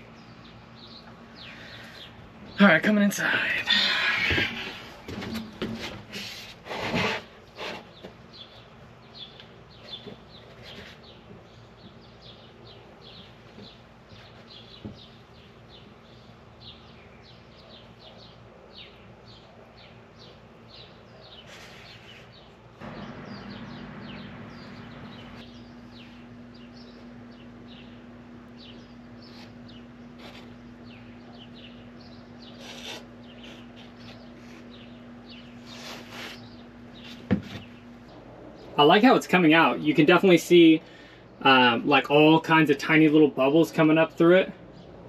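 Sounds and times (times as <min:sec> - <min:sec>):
steady low hum: 0:00.0 - 0:45.0
bird chirping: 0:07.9 - 0:42.7.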